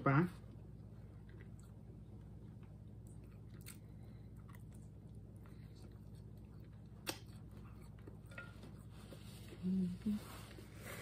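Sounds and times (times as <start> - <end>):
steady low hum: 0.0 - 11.0
chewing with mouth clicks: 0.6 - 9.1.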